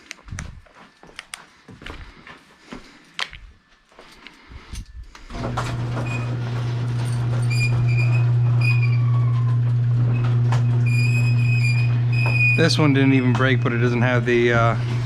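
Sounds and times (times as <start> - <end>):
machine humming: 5.3 - 15.0.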